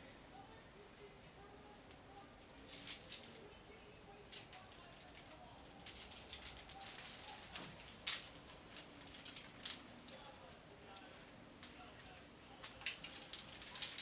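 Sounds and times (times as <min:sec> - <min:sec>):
metal climbing gear clinking: 0:02.4 - 0:11.4, 0:12.5 - 0:14.0.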